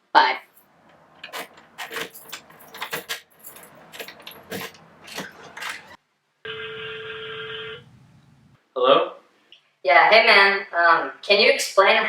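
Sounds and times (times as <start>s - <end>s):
sharp clicks and clatters: 0.8s - 6.0s
phone ringing electronic tone: 6.5s - 7.9s.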